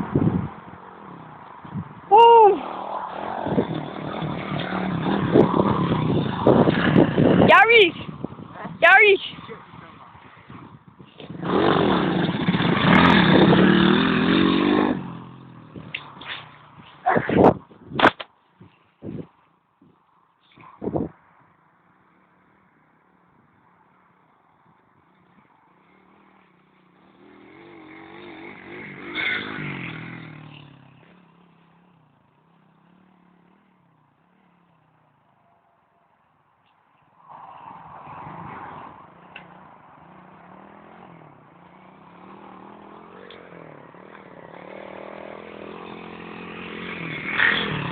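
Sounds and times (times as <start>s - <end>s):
motorbike engine revving by: 2.6s - 7.5s, 11.2s - 17.6s, 25.8s - 33.8s, 37.7s - 47.9s.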